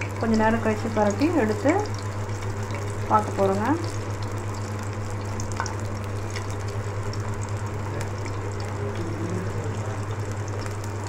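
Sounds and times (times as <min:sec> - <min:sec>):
frying in hot oil sizzling: 0:00.0 - 0:11.0
steady low hum: 0:00.0 - 0:11.0.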